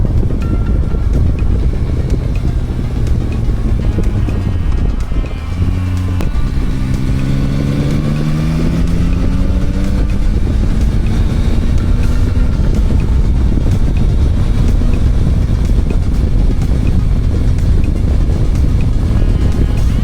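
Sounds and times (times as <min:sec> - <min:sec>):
motorcycle engine accelerating: 0:00.0 - 0:20.0
wind and road noise: 0:00.0 - 0:20.0.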